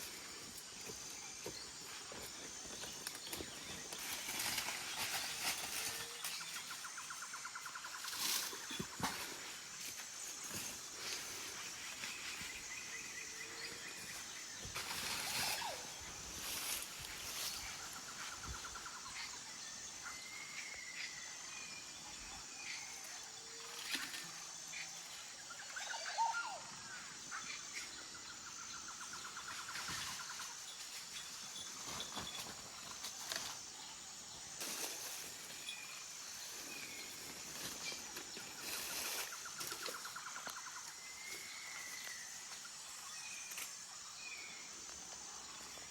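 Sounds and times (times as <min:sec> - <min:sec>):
birds trilling and calling: 0:24.8 - 0:33.8.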